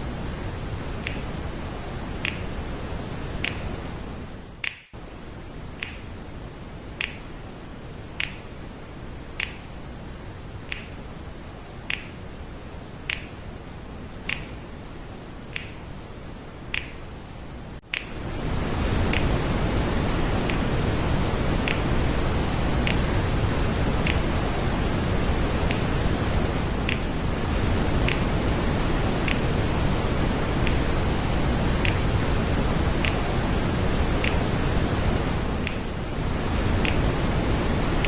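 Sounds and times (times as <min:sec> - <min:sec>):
waterfall rushing: 0:18.0 - 0:38.0.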